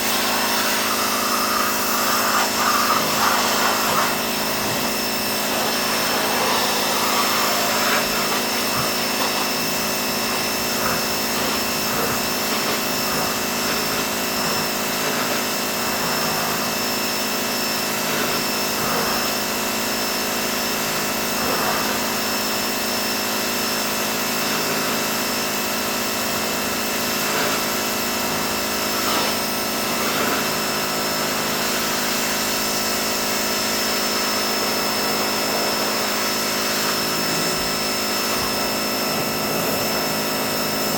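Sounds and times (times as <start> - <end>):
spray hissing: 0.0 - 22.8
high steady whine: 0.0 - 24.0
pressure washer drone: 0.0 - 40.9.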